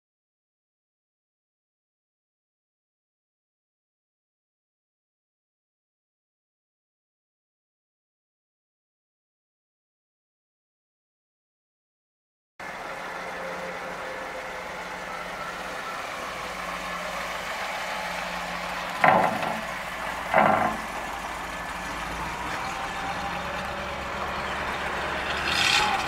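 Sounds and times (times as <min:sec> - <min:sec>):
car engine idling: 0:12.6 - 0:26.0.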